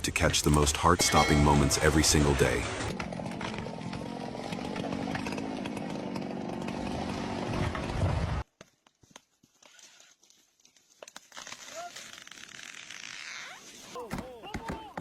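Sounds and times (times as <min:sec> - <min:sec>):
chainsaw cutting: 0:01.2 - 0:08.0.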